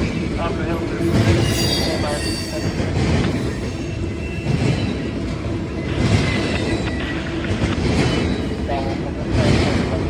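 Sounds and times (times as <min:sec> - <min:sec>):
train wheels rumbling on rail: 0:00.0 - 0:10.0
high wheel squeal: 0:01.0 - 0:05.1.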